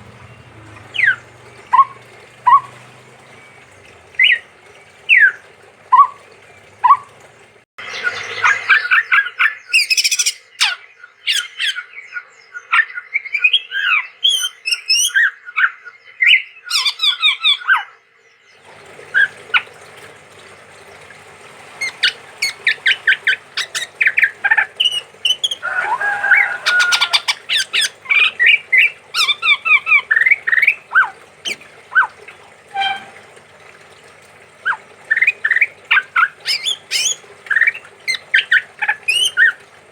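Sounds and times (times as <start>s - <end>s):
babbler singing rapid notes: 34.6s - 39.6s.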